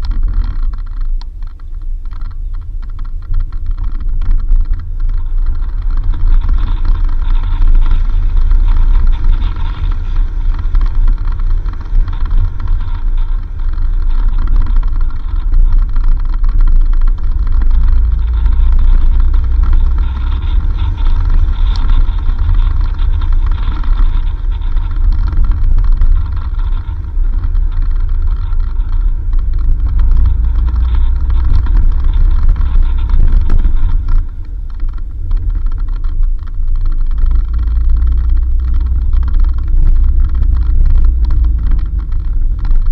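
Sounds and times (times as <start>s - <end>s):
vehicle engine and tyres rumbling: 0.0s - 42.9s.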